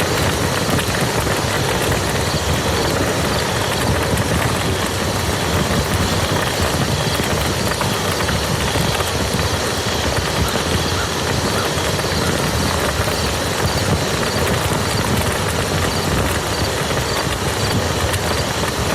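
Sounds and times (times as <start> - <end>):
rain pattering on a field: 0.0 - 18.9
raindrops ticking: 0.0 - 18.9.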